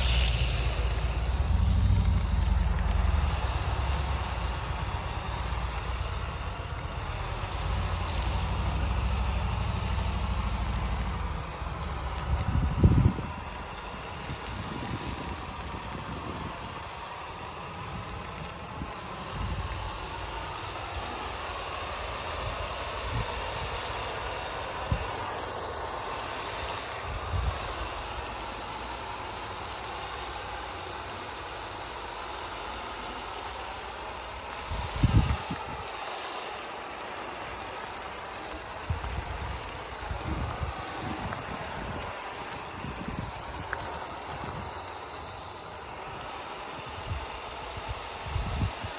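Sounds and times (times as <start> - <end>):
wind on microphone: 0.0 - 16.8, 34.7 - 35.9, 38.8 - 44.9, 46.8 - 48.9
faint vehicle engine: 0.0 - 48.7.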